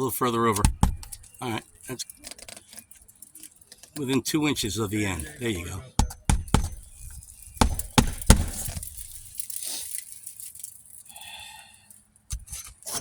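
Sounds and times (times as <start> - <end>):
hammer driving nails into shingle: 0.5 - 1.4, 6.0 - 9.3.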